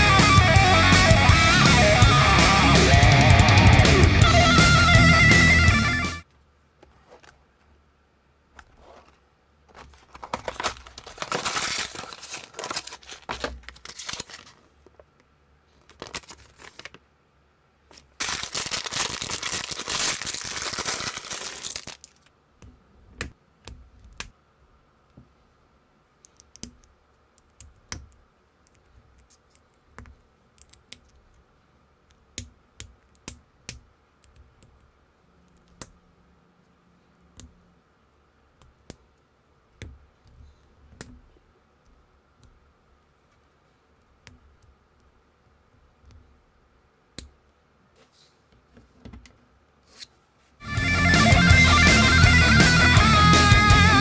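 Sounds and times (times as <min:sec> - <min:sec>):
cardboard and plastic tearing: 0:09.7 - 0:14.6, 0:15.9 - 0:17.0, 0:18.0 - 0:22.3.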